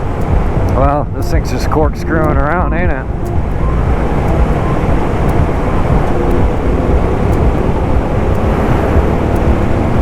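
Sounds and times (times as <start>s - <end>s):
wind rush on microphone: 0.0s - 10.0s
motorcycle engine drone: 2.1s - 10.0s.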